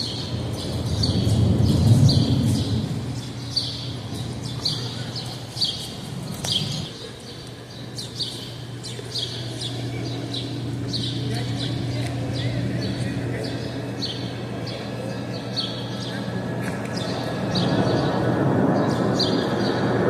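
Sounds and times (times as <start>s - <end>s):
low rumble: 0.0s - 4.6s
small bird chirping: 0.0s - 16.3s
steady low hum: 0.0s - 20.0s.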